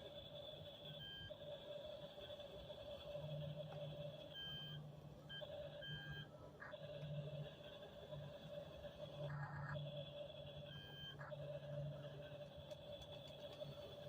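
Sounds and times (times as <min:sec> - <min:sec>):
toy tractor electronic tone: 0:03.2 - 0:08.0, 0:09.2 - 0:12.4.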